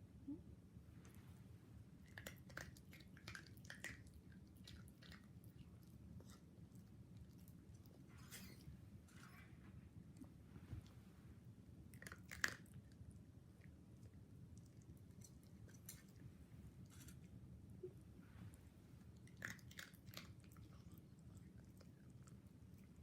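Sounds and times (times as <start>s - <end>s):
dog chewing and crunching food: 1.8s - 17.5s, 18.4s - 23.0s.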